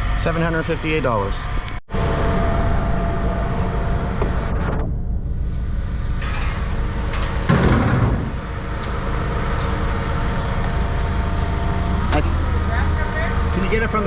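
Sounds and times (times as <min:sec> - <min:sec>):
heavy machinery humming: 0:00.0 - 0:14.0.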